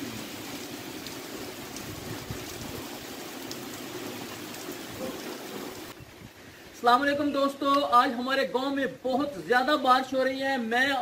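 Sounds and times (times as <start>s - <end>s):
heavy rain splashing on mud: 0.0s - 6.0s.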